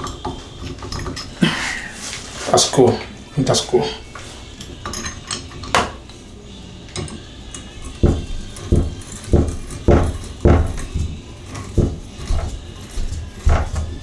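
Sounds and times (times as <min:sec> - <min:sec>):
metal tools clinking: 0:00.0 - 0:01.9, 0:02.6 - 0:14.0
heavy knocks: 0:08.0 - 0:14.0.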